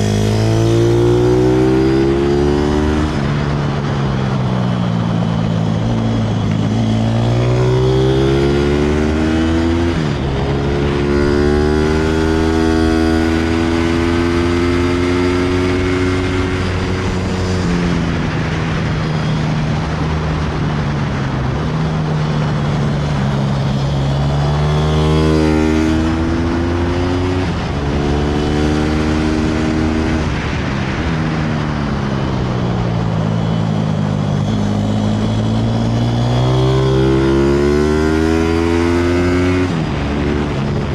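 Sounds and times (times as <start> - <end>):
pit bike engine revving: 5.9 - 18.8, 34.4 - 40.9.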